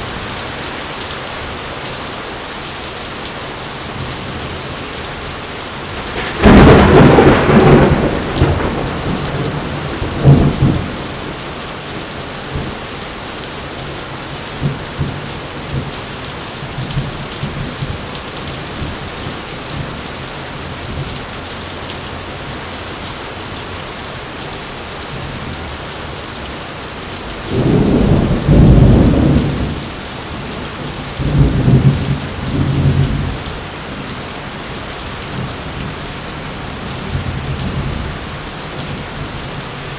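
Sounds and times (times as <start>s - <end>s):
heavy rain falling: 0.0s - 39.9s
thunder cracks and rumbles: 5.9s - 11.6s, 27.4s - 33.6s.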